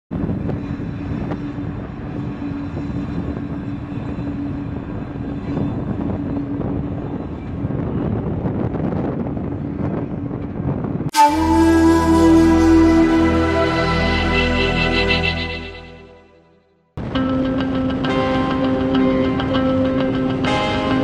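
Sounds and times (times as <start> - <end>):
diesel locomotive drone: 0.1 - 21.0.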